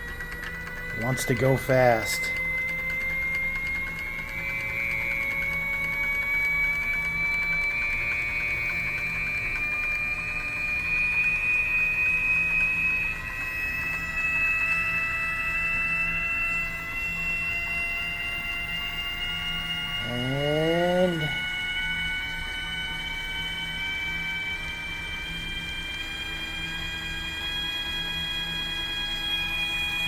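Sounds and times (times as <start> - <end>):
steady low hum: 0.0 - 14.7, 16.4 - 24.5
lathe drive whining: 0.0 - 30.0.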